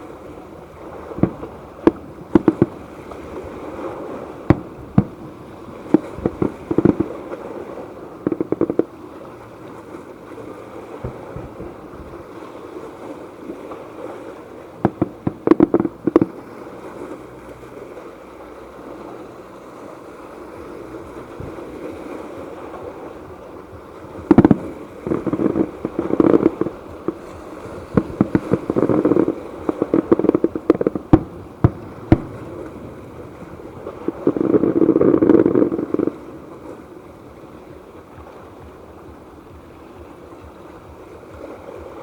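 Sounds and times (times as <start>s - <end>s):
steady background hiss: 0.0s - 42.0s
fireworks bangs and crackles: 0.7s - 9.0s, 10.8s - 12.4s, 13.7s - 16.5s, 21.4s - 36.9s.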